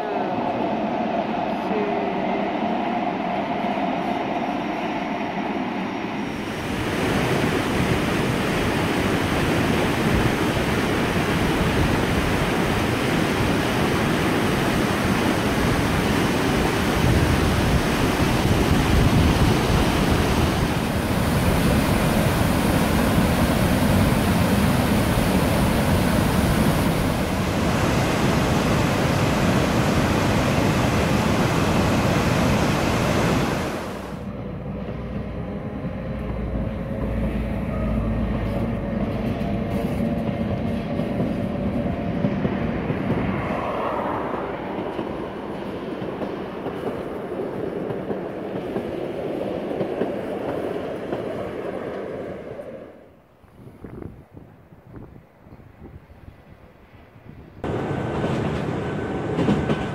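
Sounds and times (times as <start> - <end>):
train running: 0.0 - 53.2, 55.8 - 59.9
water rushing over rocks: 6.4 - 34.2.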